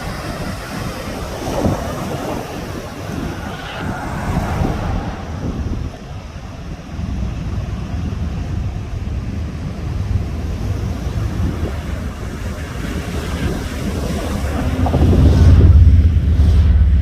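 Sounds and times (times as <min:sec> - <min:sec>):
surf washing on a beach: 0:00.0 - 0:17.0
wind buffeting the microphone: 0:00.0 - 0:17.0.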